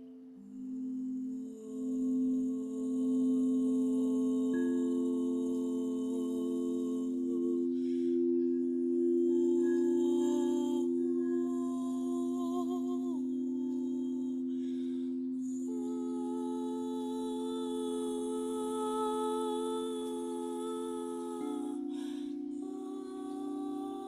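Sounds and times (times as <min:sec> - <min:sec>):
person humming held tones: 0:00.0 - 0:24.0.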